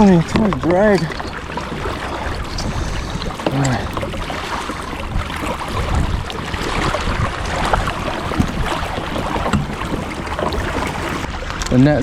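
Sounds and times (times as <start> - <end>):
water splashing and sloshing: 0.0 - 12.0
wind rumbling on microphone: 0.0 - 12.0.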